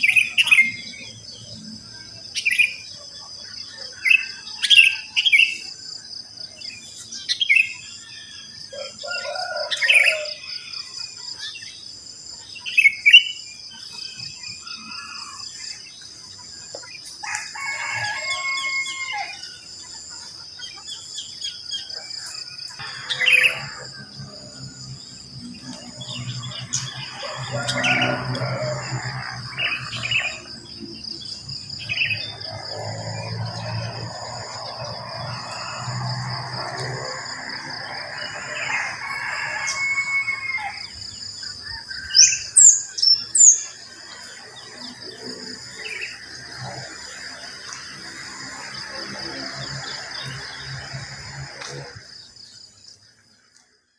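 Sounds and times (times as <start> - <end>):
birds chirping: 0.0 - 37.5
high insect trill: 0.0 - 53.5.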